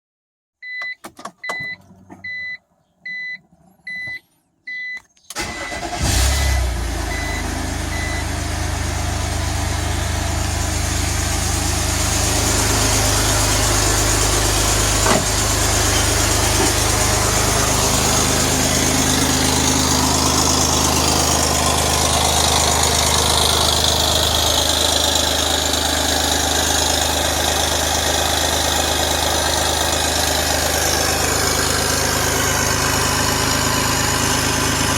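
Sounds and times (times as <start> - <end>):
short beeps: 0.6 - 5.8, 6.4 - 8.3
car engine starting and idling: 0.6 - 34.9.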